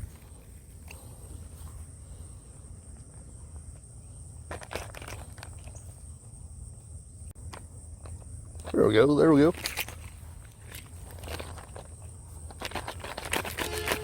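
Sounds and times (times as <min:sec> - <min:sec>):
rustles or clicks: 0:03.0 - 0:06.1, 0:07.4 - 0:14.0.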